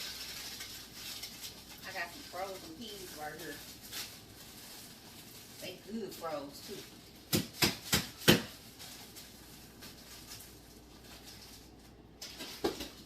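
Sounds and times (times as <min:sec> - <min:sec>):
frozen bag knocking on hard surface: 0:07.3 - 0:08.7, 0:12.3 - 0:13.0.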